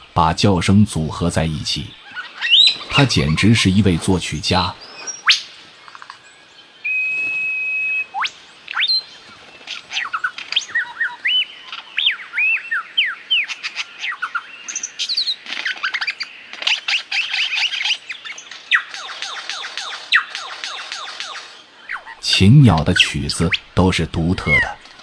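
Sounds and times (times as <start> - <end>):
lyrebird whistling calls: 1.1 - 6.0, 6.8 - 9.1, 9.7 - 25.0
bird rattling chatter: 18.3 - 21.6.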